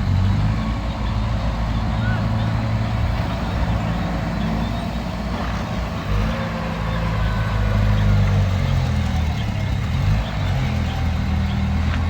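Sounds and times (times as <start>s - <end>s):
heavy diesel engine under load: 0.0s - 12.0s.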